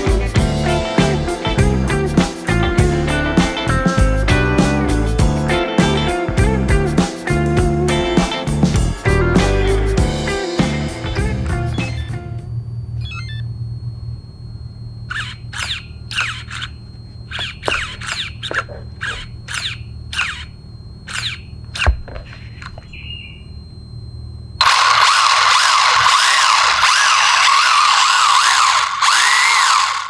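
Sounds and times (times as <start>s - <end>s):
electric motor whine revving: 24.6s - 30.0s.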